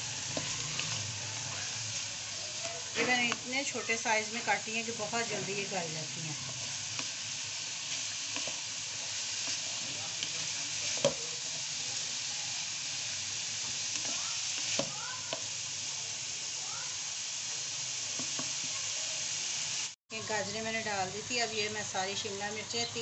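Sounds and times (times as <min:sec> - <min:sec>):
wooden spatula scraping wok: 0:00.0 - 0:12.2
vegetables sizzling in oil: 0:00.0 - 0:23.0.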